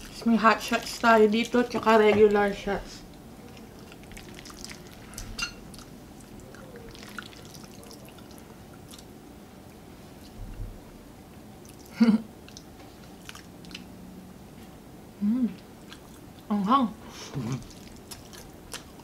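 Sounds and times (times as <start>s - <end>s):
chewing: 3.4s - 9.1s, 11.6s - 13.9s, 15.8s - 16.5s, 17.5s - 19.0s
wet squelching of noodles: 3.4s - 9.1s, 11.6s - 13.9s, 17.5s - 19.0s.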